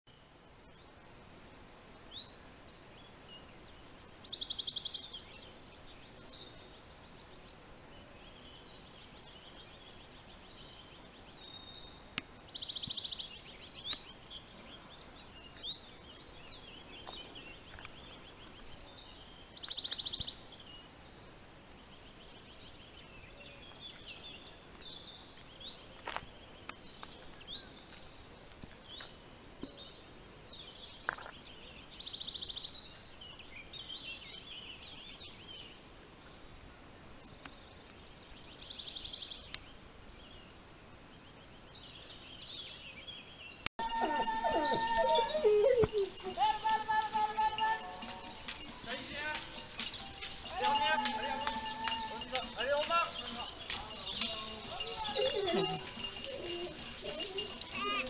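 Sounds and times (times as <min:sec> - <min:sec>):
faint steady hiss: 0:00.1 - 0:43.7
high bird chirps: 0:43.8 - 0:58.0.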